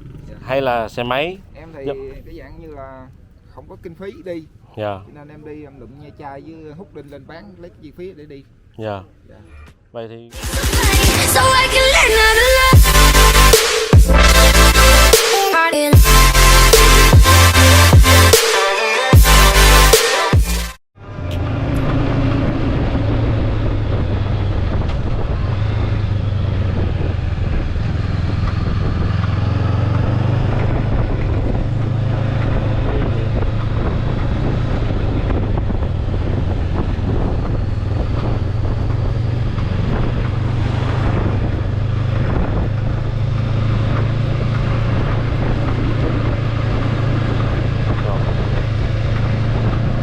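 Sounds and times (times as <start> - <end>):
wind noise on microphone: 21.2 - 50.0.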